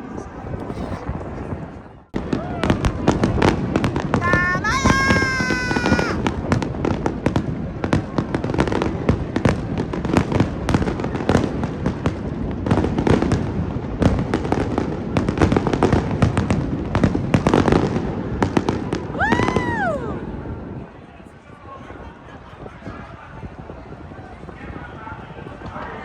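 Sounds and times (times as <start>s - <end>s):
fireworks bursting and crackling: 0.4s - 20.7s.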